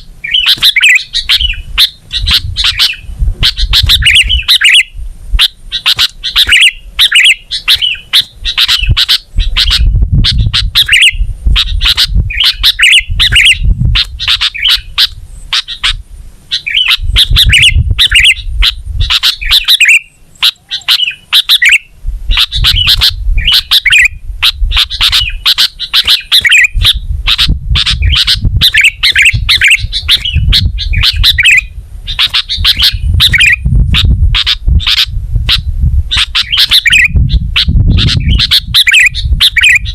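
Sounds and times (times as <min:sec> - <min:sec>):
bulbul chattering song: 0:00.0 - 0:39.9
low rumble: 0:26.7 - 0:39.9.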